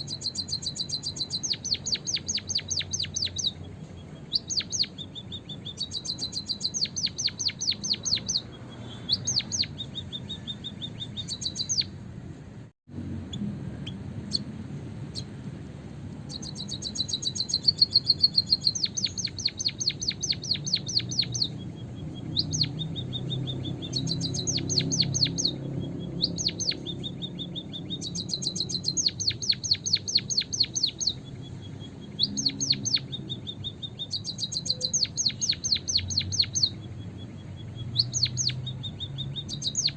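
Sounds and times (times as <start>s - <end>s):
bird song rapid high chirps: 0.0s - 12.1s, 13.2s - 39.9s.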